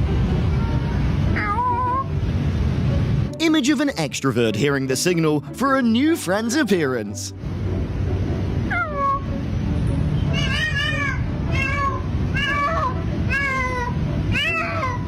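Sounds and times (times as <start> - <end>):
cat meowing: 0.6 - 2.1, 8.7 - 9.3, 10.3 - 15.0.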